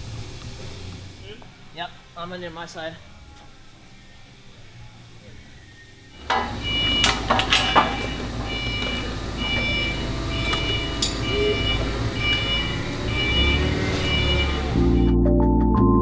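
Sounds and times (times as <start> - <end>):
low shop hum: 0.0 - 15.1
sharp metal clanks: 6.2 - 15.1
two-tone warning beeper: 6.2 - 15.1.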